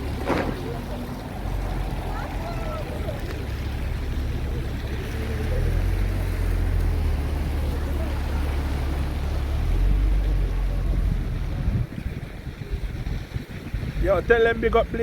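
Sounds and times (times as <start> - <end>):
faint voices: 0.0 - 13.7
wind buffeting microphone: 9.7 - 15.0.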